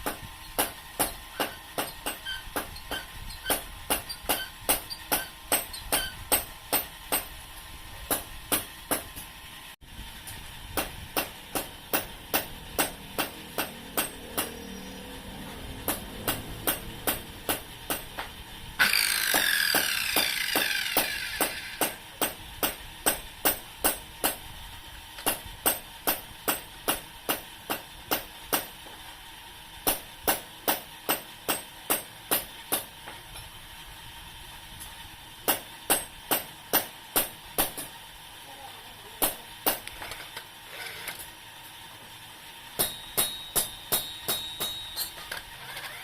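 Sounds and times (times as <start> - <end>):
hammer on metal: 0.0 - 7.4, 8.1 - 9.3, 10.8 - 14.6, 15.8 - 24.4, 25.2 - 28.7, 29.9 - 32.9, 35.5 - 38.0, 39.2 - 39.8, 42.8 - 45.2.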